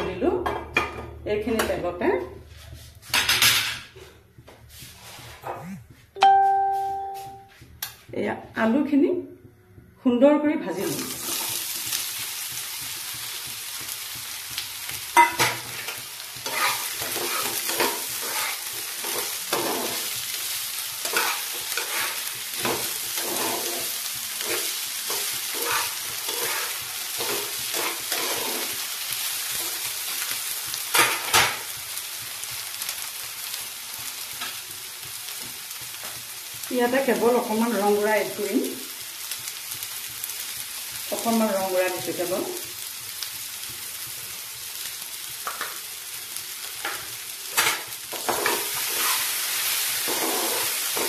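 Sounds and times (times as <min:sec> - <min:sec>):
potatoes sizzling in oil: 0:10.6 - 0:51.0
spatula scraping and tapping pan: 0:11.3 - 0:20.2, 0:21.0 - 0:28.8, 0:46.8 - 0:49.2.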